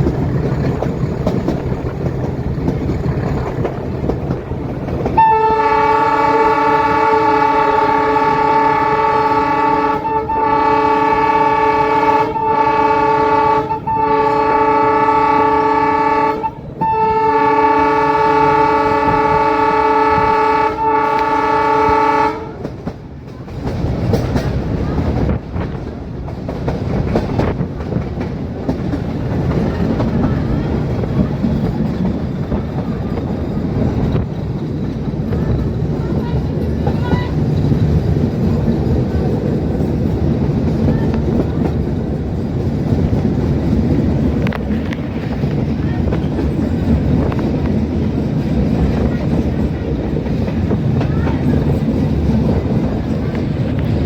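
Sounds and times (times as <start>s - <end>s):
train rumbling on track: 0.0s - 54.0s
locomotive horn blasts: 5.2s - 22.7s.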